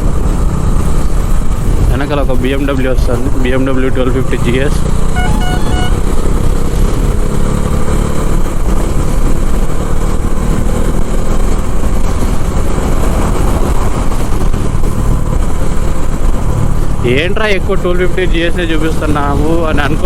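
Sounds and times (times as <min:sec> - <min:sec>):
motorcycle engine running: 0:00.0 - 0:19.7
short tooting notes: 0:05.1 - 0:06.2
wind buffeting microphone: 0:08.3 - 0:17.1.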